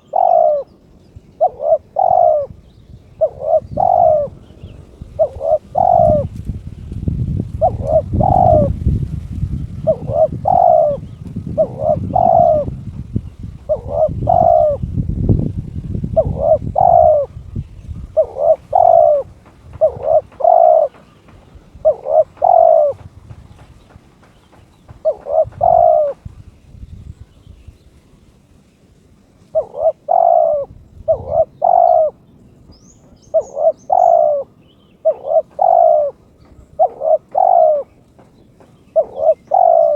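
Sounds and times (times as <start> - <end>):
dove cooing: 0.0 - 0.8, 1.4 - 15.1, 16.0 - 23.2, 24.9 - 26.2, 29.4 - 32.2, 33.1 - 38.0, 38.9 - 39.9.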